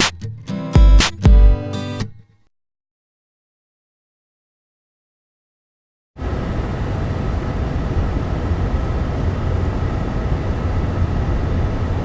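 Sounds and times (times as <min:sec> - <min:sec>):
faint hum: 0:06.2 - 0:12.0.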